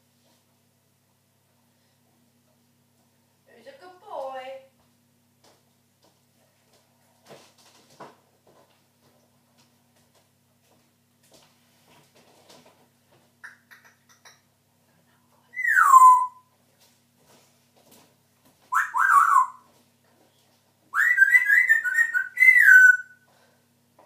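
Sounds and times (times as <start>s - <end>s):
parrot whistling: 15.6s - 16.4s, 18.7s - 19.7s, 20.9s - 23.2s.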